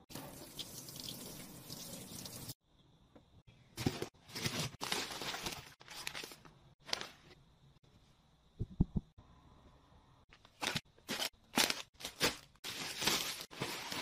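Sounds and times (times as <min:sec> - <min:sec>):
water running from a tap: 0:00.0 - 0:02.6.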